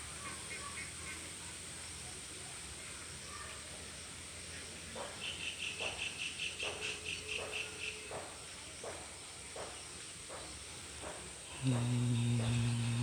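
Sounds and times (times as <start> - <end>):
rapid insect trill: 11.5 - 13.0
soft low pulses: 11.5 - 13.0
steady high-pitched hum: 11.5 - 13.0.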